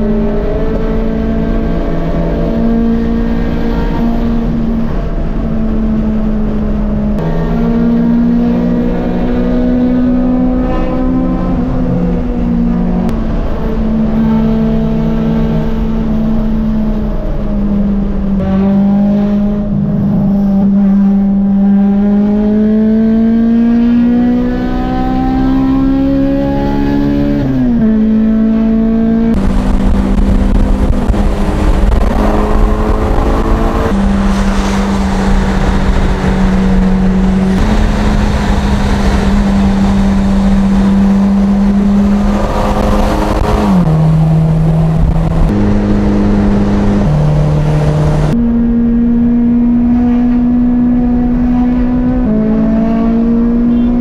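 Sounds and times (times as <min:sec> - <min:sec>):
car engine droning: 0:00.0 - 0:54.0
road and wind noise: 0:00.0 - 0:54.0.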